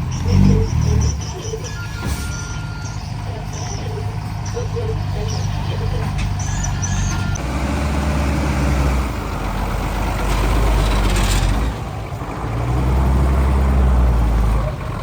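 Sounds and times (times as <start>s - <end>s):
heavy diesel engine under load: 0.0s - 15.0s.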